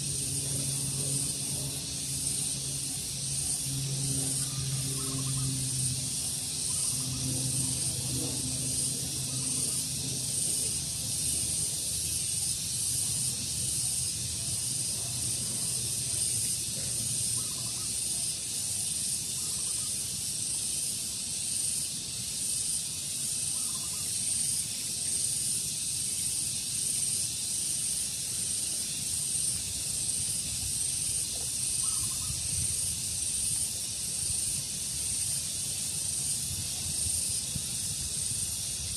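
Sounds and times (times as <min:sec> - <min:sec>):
low hum: 0:00.0 - 0:12.0
steady high hiss: 0:00.0 - 0:38.9
faint bird calls: 0:31.8 - 0:32.4.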